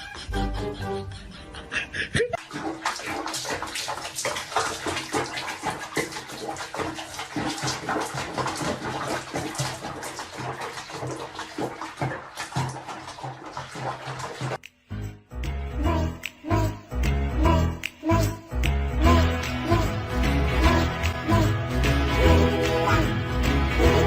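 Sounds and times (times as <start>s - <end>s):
water splashing and sloshing: 2.4s - 14.6s.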